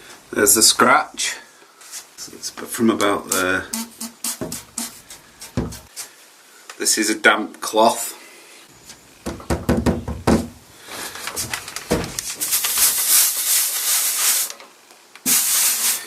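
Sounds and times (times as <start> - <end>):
steam iron hissing: 3.7 - 6.1, 15.2 - 16.0.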